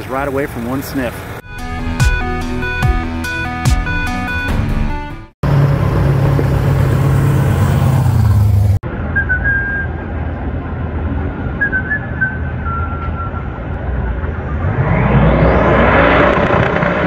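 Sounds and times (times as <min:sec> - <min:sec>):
car engine droning: 0:05.4 - 0:17.0
high whistling tones: 0:09.0 - 0:10.0, 0:11.6 - 0:16.4
low rumble: 0:13.6 - 0:17.0.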